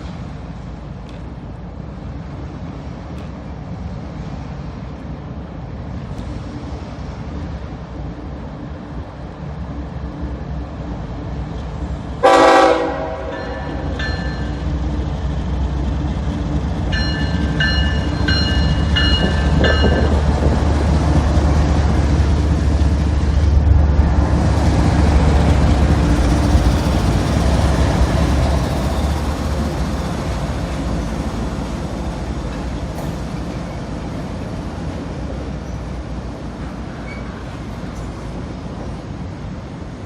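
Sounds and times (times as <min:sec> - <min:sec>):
train engine rumble: 0:00.0 - 0:40.0
train wheels on rails: 0:00.0 - 0:40.0
train horn blast: 0:12.2 - 0:13.9
locomotive bell ringing: 0:13.3 - 0:14.7, 0:16.9 - 0:20.2.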